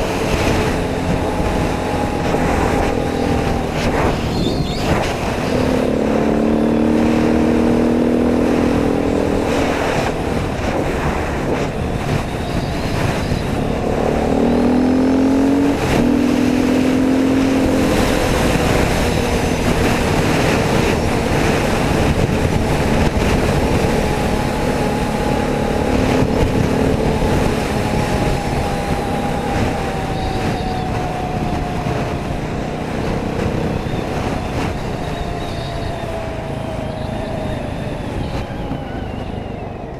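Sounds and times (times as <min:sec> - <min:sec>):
dirt bike engine revving: 0:00.0 - 0:37.3.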